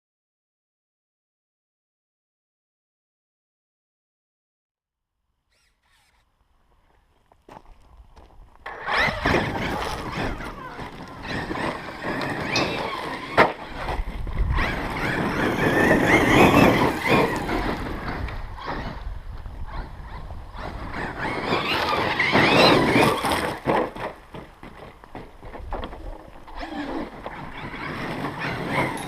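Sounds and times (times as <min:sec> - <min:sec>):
electric motor whining: 0:05.5 - 0:06.3, 0:08.7 - 0:23.7
tyre and ground noise: 0:05.5 - 0:29.0.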